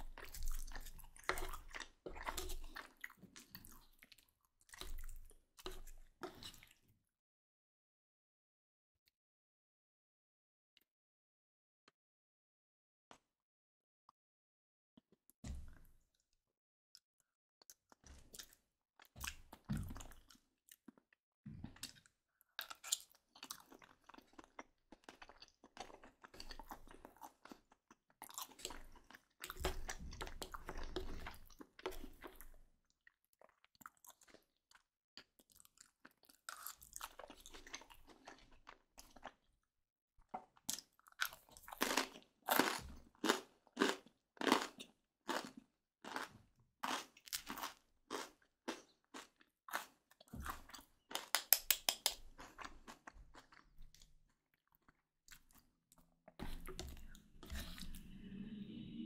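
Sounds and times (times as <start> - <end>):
wet chewing: 0.0 - 6.7.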